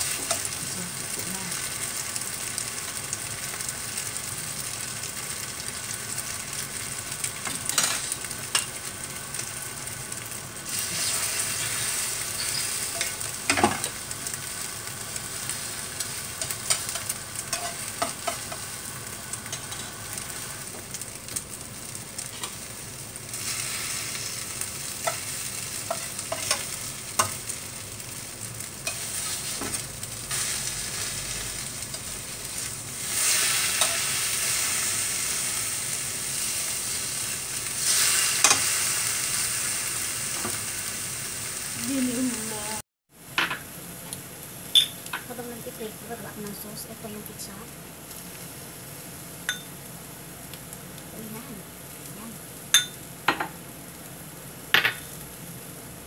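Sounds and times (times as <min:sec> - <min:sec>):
fritters sizzling in oil: 0:00.0 - 0:56.0
spatula clicking and scraping pan: 0:12.4 - 0:14.0, 0:16.4 - 0:18.7, 0:25.0 - 0:27.4, 0:33.7 - 0:34.0.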